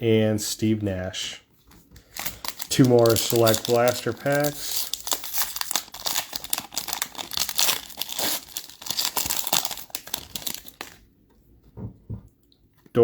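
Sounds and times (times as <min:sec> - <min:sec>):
foil wrappers crinkling and tearing: 0:02.0 - 0:11.0.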